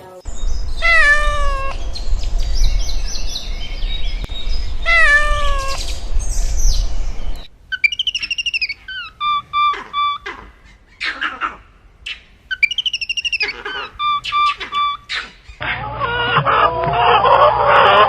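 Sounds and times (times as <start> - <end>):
low rumble: 0.2 - 7.5
high-pitched chirping calls: 0.3 - 11.5, 12.1 - 15.6
cat meowing: 0.8 - 1.8, 4.8 - 5.8.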